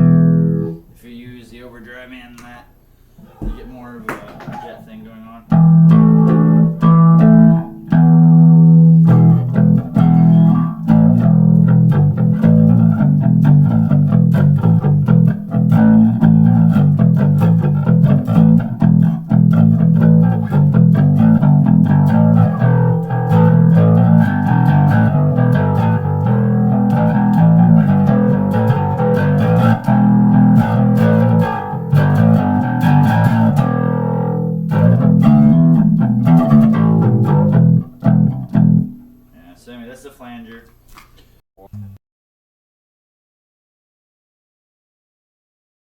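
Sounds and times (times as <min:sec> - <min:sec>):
electric bass riff with flanger: 0:00.0 - 0:00.8, 0:05.5 - 0:39.0.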